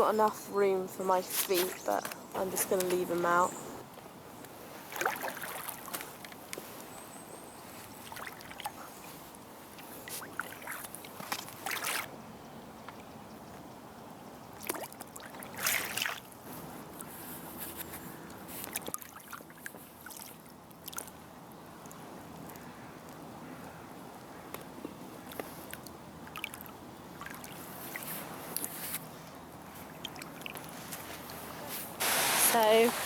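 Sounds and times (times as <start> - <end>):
moving water: 0.0 - 33.0
paddle strokes splashing: 4.6 - 6.9, 7.8 - 12.1, 14.6 - 17.9, 29.7 - 33.0.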